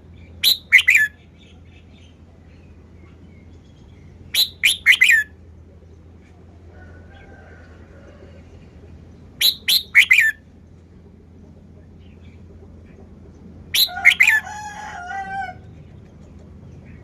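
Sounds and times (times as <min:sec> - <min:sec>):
bulbul singing sharp notes: 0:00.4 - 0:01.2, 0:04.3 - 0:05.3, 0:09.4 - 0:10.4.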